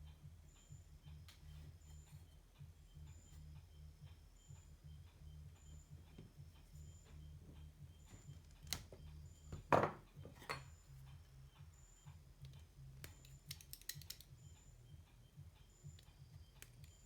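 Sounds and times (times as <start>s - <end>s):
steady low hum: 0.0s - 17.0s
tools clicking and tapping: 4.0s - 17.0s
knock: 9.6s - 10.6s.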